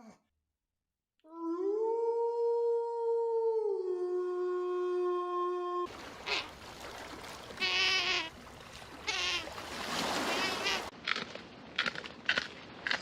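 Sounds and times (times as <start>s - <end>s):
animal calls: 9.0s - 9.5s, 10.2s - 10.9s.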